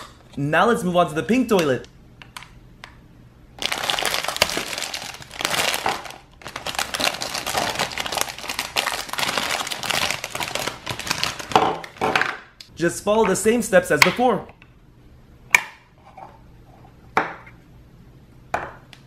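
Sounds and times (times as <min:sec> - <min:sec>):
plastic bag crinkling: 0:03.6 - 0:12.0.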